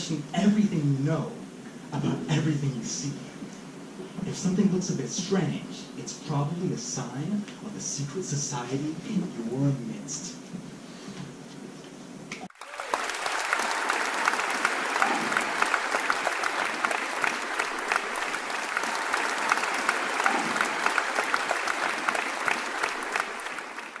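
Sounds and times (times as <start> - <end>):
audience applauding: 12.5 - 24.0.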